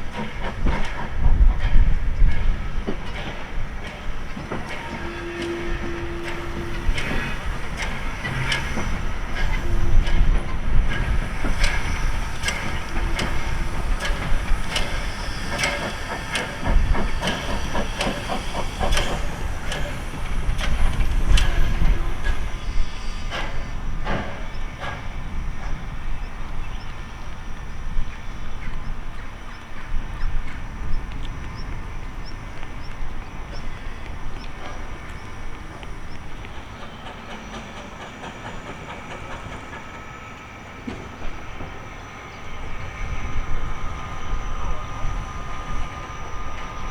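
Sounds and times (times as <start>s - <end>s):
hissing steam: 0.0s - 46.9s
steam locomotive rumble: 0.0s - 46.9s.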